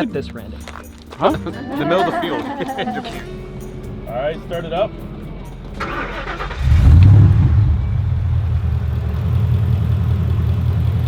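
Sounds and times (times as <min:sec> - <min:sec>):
truck engine starting and idling: 0:04.7 - 0:11.0.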